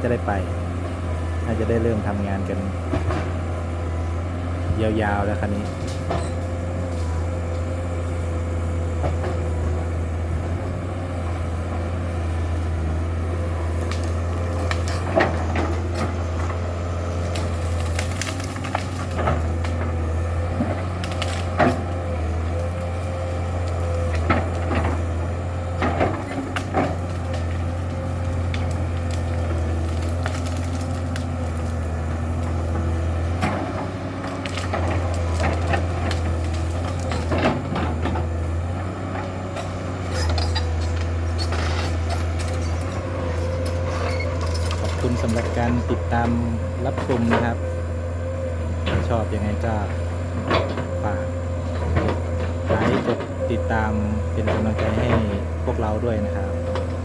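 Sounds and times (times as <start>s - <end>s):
excavator diesel engine whine: 0.0s - 57.0s
wood cracking and snapping: 13.8s - 25.0s, 25.8s - 37.7s.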